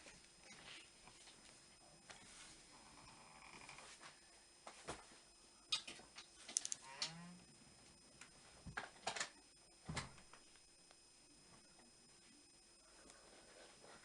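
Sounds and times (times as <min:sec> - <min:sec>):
clicks of small objects handled: 0:05.8 - 0:06.8.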